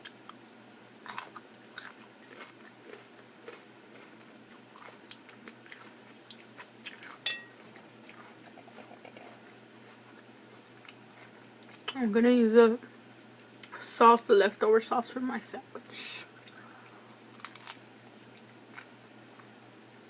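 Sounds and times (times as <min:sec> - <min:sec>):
chewing salad: 0:01.0 - 0:12.4, 0:13.4 - 0:13.8, 0:16.3 - 0:19.6.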